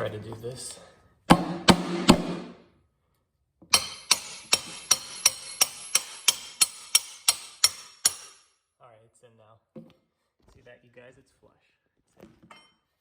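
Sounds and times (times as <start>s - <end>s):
hammer ringing on metal: 3.7s - 8.4s.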